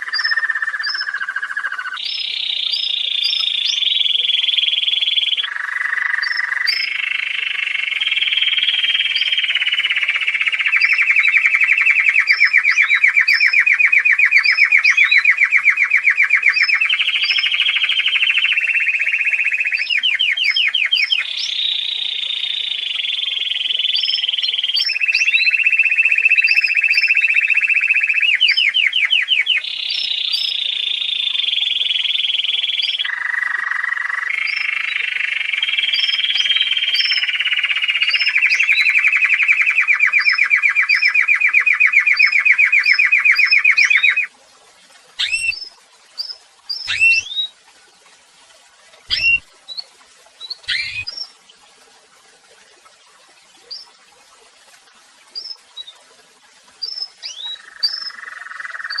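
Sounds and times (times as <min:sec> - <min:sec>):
thin high bird chirps: 0:00.0 - 0:31.2, 0:31.8 - 0:44.3, 0:45.2 - 0:47.5, 0:49.1 - 0:51.4, 0:53.6 - 0:54.0, 0:55.3 - 0:56.0, 0:56.8 - 0:59.0
songbird singing rapid trills: 0:00.0 - 0:44.3, 0:45.2 - 0:47.5, 0:49.1 - 0:51.4, 0:55.4 - 0:56.0, 0:56.8 - 0:59.0
bird calls sweeping downward: 0:45.2 - 0:47.5, 0:49.1 - 0:49.5, 0:50.4 - 0:51.3.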